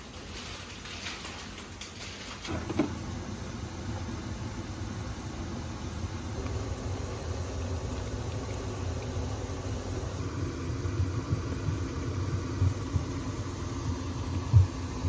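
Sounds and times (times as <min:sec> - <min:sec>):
small irregular bumps: 0:00.0 - 0:03.0
low mechanical rumble: 0:00.0 - 0:15.0.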